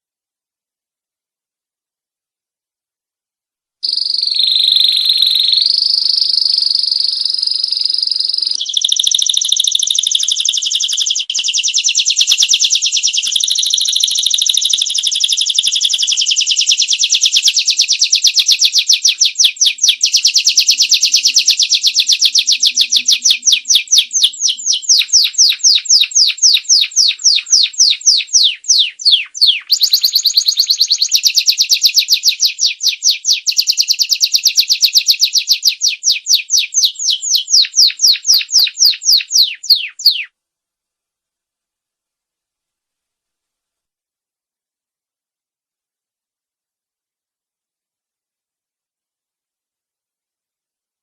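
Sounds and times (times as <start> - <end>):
canary trilling: 3.8 - 40.3.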